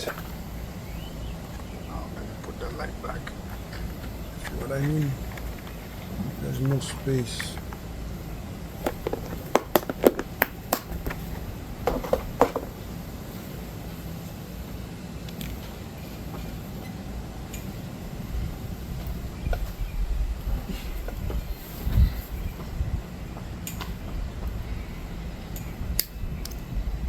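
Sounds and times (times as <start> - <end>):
low background rumble: 0.0 - 27.0
plastic parts clicking and knocking: 8.8 - 11.2, 11.8 - 12.7.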